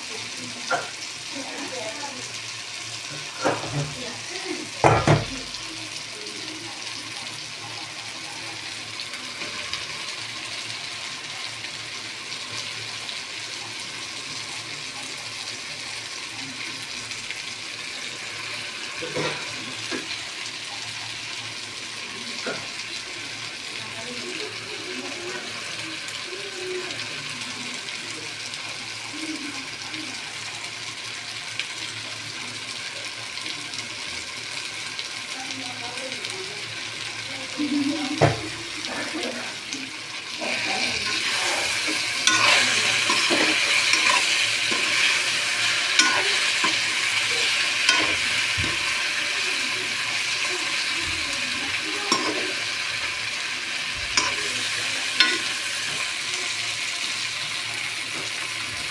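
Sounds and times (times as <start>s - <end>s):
food sizzling in a pan: 0.0s - 58.9s.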